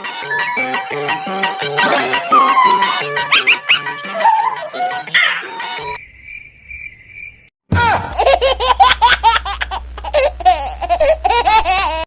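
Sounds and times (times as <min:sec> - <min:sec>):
child laughing: 0:01.8 - 0:05.5, 0:08.2 - 0:12.0.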